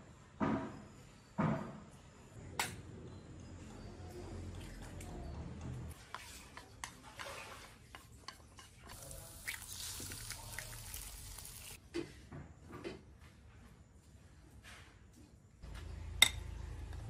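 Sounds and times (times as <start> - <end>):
hissing watery noise: 9.0 - 11.8.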